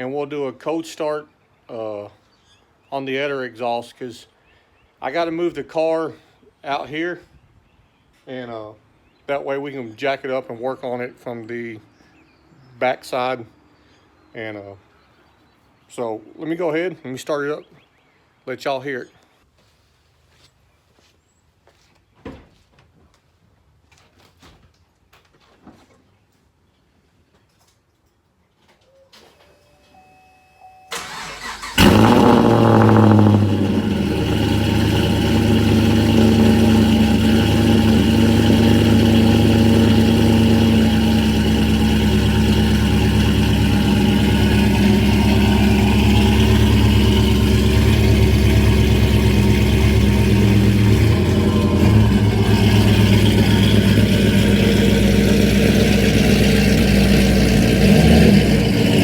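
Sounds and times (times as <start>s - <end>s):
car engine revving and idling: 31.0s - 59.0s.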